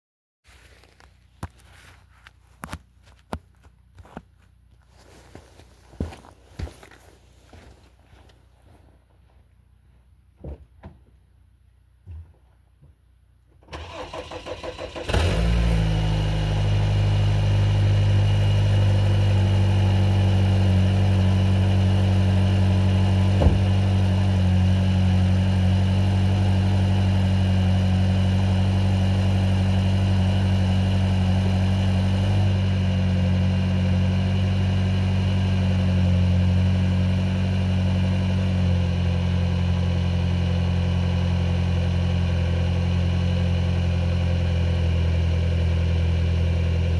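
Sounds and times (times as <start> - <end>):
car engine idling: 13.8 - 46.9.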